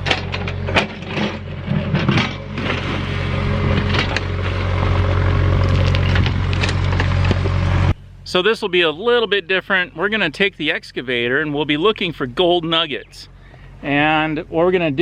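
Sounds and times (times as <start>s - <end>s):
bucket scraping rock and gravel: 0.0s - 7.9s
excavator engine running: 0.0s - 15.0s.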